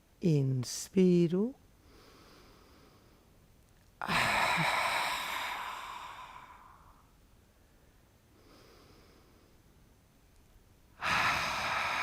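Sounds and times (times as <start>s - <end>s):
faint breath in through nose: 1.8s - 3.4s, 4.2s - 9.6s, 11.0s - 12.0s
person exhaling hard: 4.0s - 7.1s, 11.0s - 12.0s.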